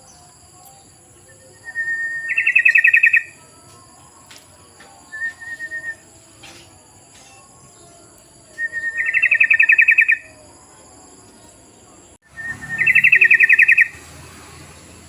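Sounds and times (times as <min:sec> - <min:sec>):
bulbul calling with rattling trill: 0:00.6 - 0:03.5, 0:08.5 - 0:10.5, 0:12.3 - 0:14.1.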